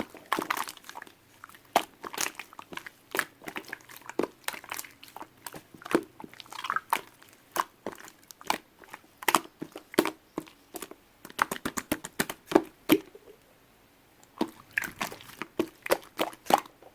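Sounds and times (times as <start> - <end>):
squishy ball squeezed by hand: 14.4 - 16.8.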